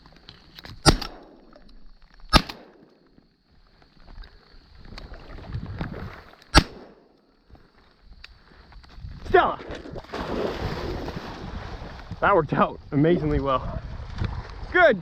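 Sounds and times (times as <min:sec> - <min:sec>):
shotgun shots: 0:00.8 - 0:01.5, 0:02.3 - 0:02.9, 0:06.5 - 0:07.1.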